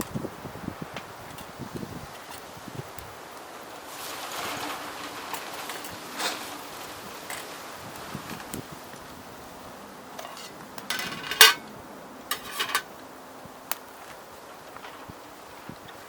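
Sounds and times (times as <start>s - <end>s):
metal utensils clinking on cookware: 10.2s - 11.7s, 12.3s - 12.9s.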